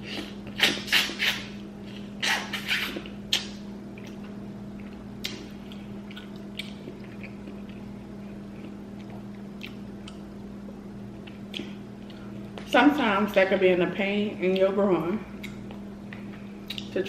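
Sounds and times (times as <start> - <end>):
wet chewing and mouth sounds: 0.1 - 12.7, 15.4 - 17.0.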